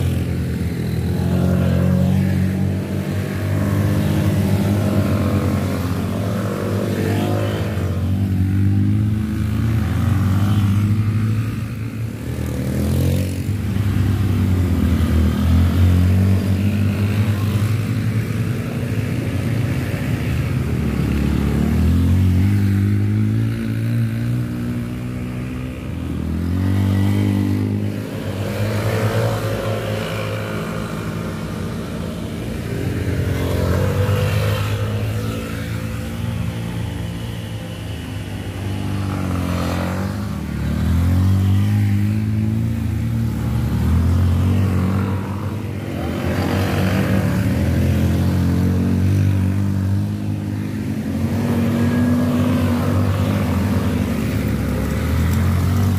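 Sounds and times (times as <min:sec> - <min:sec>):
motorcycle engine at high revs: 0:00.0 - 0:55.9.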